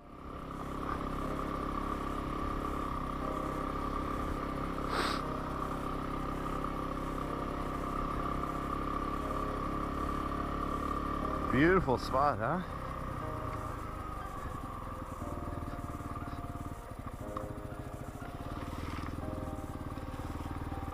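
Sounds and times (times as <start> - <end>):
motorcycle engine running steadily: 0.0 - 20.9
brief hiss: 4.9 - 5.2.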